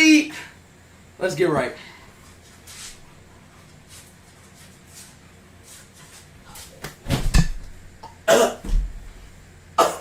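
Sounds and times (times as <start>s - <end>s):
man coughing and sputtering: 8.2s - 8.6s, 9.8s - 10.0s.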